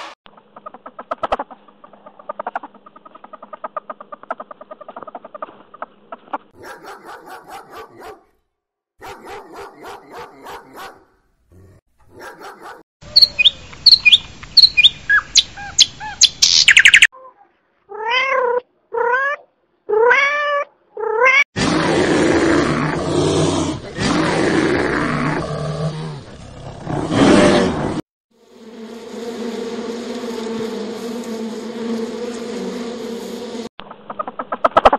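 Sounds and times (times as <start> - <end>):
bird whistling sharp notes: 13.1 - 17.1.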